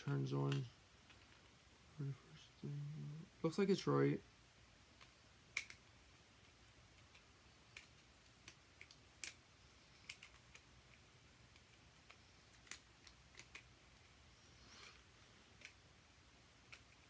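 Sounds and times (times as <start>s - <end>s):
plastic and batteries clicking: 5.0s - 9.4s, 10.0s - 13.7s, 14.8s - 15.8s.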